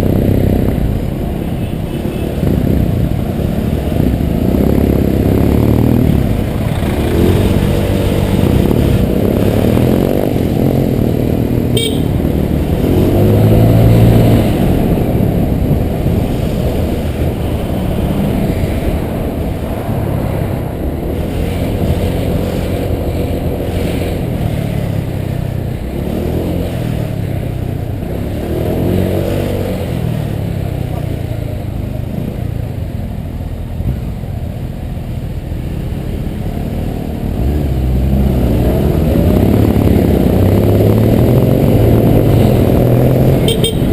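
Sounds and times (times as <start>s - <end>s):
wind and road noise: 0.0s - 43.9s
scooter engine revving: 2.4s - 16.2s.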